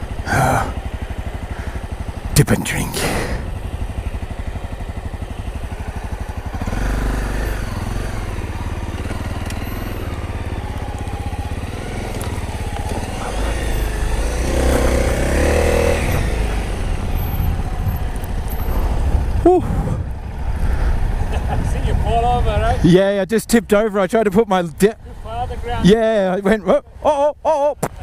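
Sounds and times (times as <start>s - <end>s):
dirt bike engine revving: 3.0s - 21.7s.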